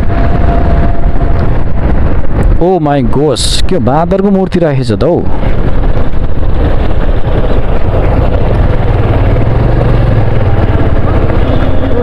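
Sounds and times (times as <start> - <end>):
motorcycle engine hum: 0.0 - 3.6, 4.9 - 12.0
wind buffeting microphone: 0.0 - 12.0.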